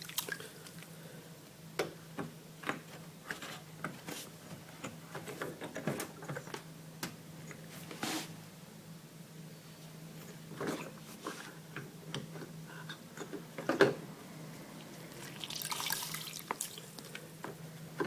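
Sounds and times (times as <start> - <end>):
water dripping into container: 0.0 - 0.9, 15.3 - 17.1.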